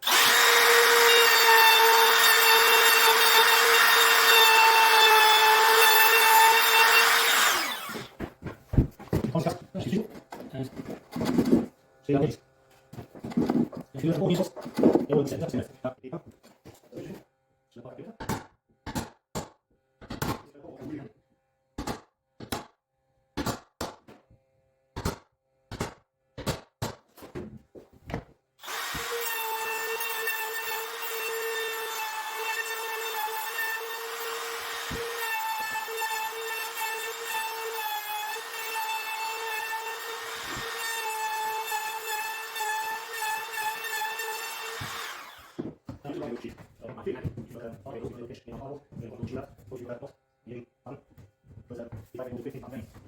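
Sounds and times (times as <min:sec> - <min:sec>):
power tool whining: 0:00.0 - 0:08.2, 0:28.6 - 0:45.7.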